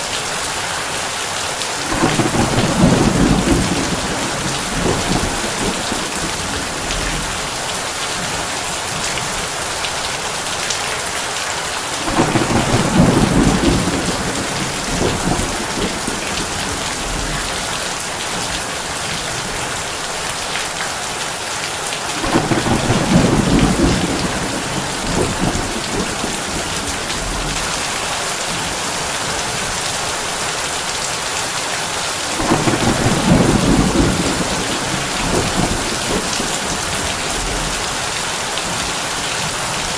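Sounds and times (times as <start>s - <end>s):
heavy rain on a tin roof: 0.0s - 39.9s
low thunder rolls: 1.8s - 9.8s, 11.9s - 19.7s, 22.2s - 29.7s, 32.2s - 39.5s.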